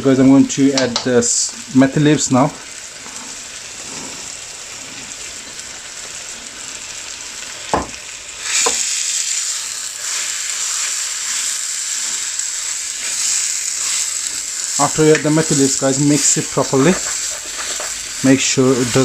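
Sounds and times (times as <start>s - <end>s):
curry sizzling in a pan: 0.0s - 19.0s
knock against a pan: 7.7s - 8.0s.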